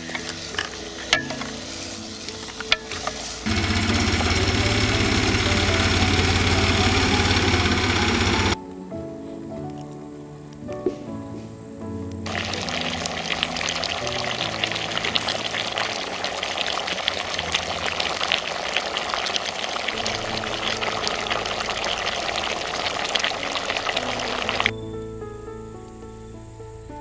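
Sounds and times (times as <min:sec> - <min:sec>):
chicken sizzling in fat: 0:00.0 - 0:08.6, 0:12.3 - 0:24.7
background music: 0:00.0 - 0:27.0.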